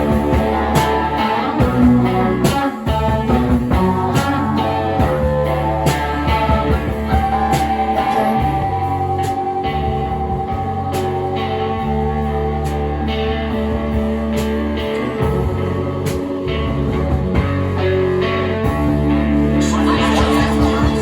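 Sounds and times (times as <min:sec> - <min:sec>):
long high guitar note: 0:00.0 - 0:13.2
rock band playing: 0:00.0 - 0:21.0.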